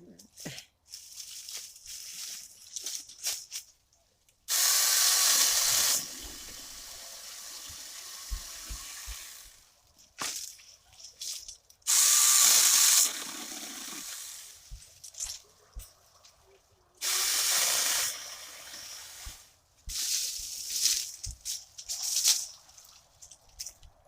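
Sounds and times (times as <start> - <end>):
mini chainsaw running: 4.5 - 9.6, 11.9 - 14.6, 17.0 - 19.2.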